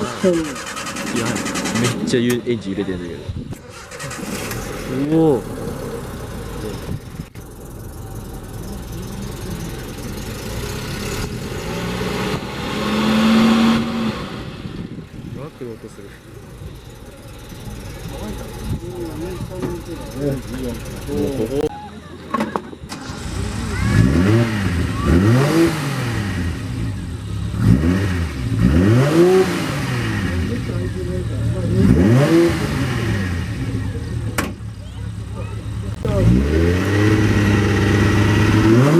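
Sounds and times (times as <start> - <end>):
car engine revving: 0.0 - 21.7, 22.8 - 38.9.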